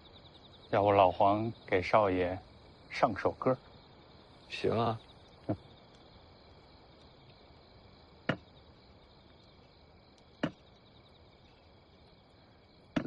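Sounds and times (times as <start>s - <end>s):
sharp wooden knocks: 8.3s - 8.5s, 10.4s - 10.6s.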